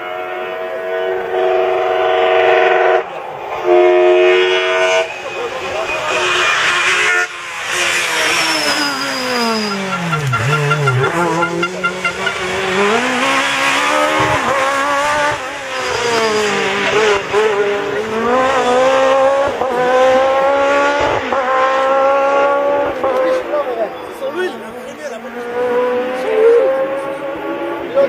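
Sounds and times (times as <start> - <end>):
rally car engine revving: 3.0 - 28.0
brief high squeal: 8.2 - 12.4.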